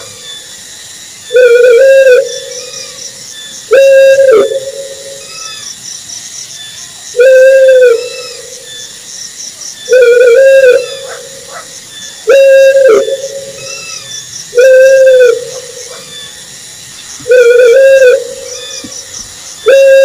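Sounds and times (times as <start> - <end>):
owl hooting: 1.2 - 5.8, 7.1 - 9.0, 9.8 - 16.6, 17.2 - 20.0.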